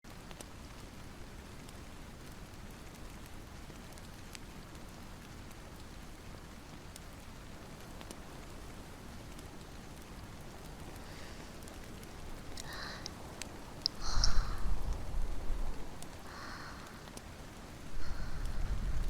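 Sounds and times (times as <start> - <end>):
steady rain: 0.0 - 19.0
faint sharp clicks and pops: 0.1 - 0.9, 6.7 - 8.6, 9.3 - 17.3.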